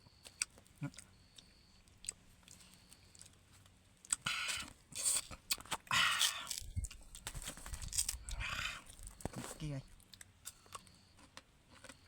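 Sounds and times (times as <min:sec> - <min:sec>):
mango crunching bites: 0:04.0 - 0:09.3.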